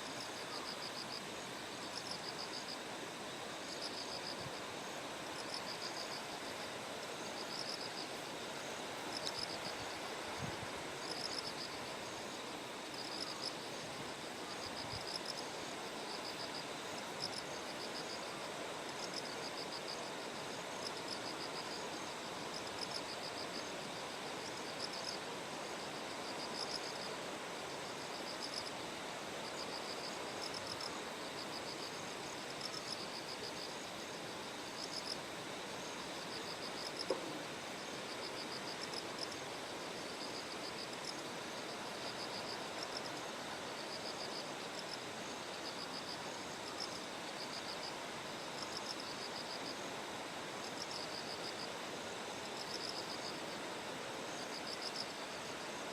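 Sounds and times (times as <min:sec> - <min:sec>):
crickets trilling: 0:00.0 - 0:55.9.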